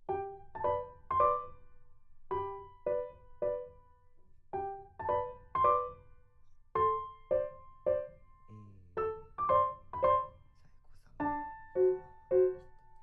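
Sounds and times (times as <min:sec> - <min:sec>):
piano notes: 0:00.0 - 0:06.1, 0:06.8 - 0:13.0.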